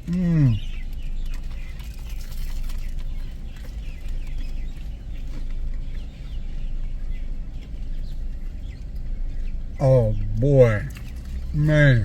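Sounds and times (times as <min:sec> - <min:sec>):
small birds chirping: 0:00.0 - 0:12.0
steady low rumble: 0:03.1 - 0:12.0.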